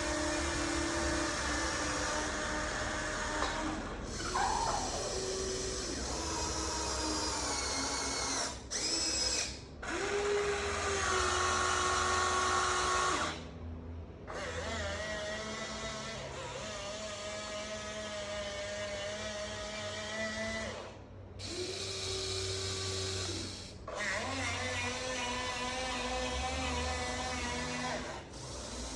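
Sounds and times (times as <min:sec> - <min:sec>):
small electric motors whining: 0:00.0 - 0:13.5, 0:14.3 - 0:28.9.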